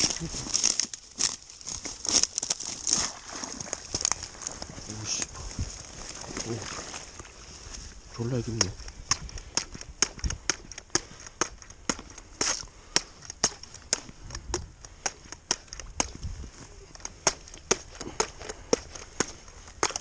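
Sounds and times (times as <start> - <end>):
sharp clicks and snaps: 8.5 - 16.2.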